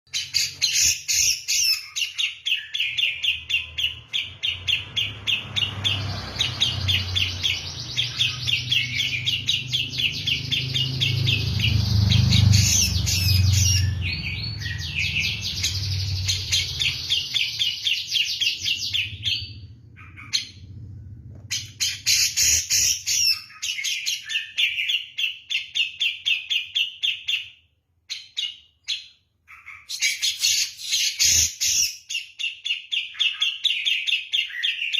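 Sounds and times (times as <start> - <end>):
bird chattering song: 0.1 - 20.8, 21.5 - 34.9
low rumble: 19.0 - 21.8.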